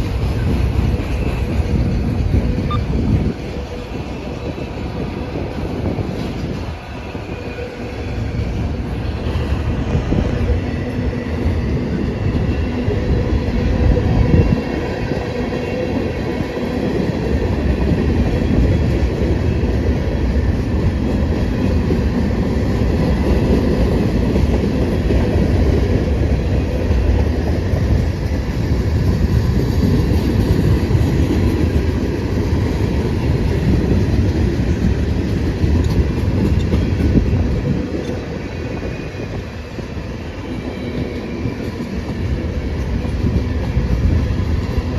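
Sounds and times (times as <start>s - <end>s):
freight train wheels rumbling: 0.0s - 44.9s.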